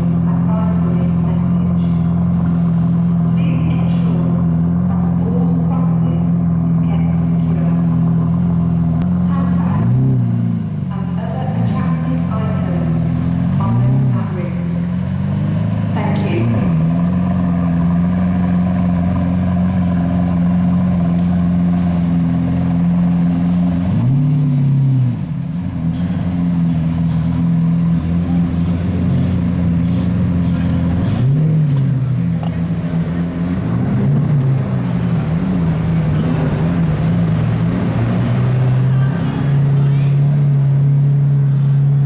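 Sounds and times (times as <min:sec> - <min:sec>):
sports car engine idling: 0:00.0 - 0:42.0.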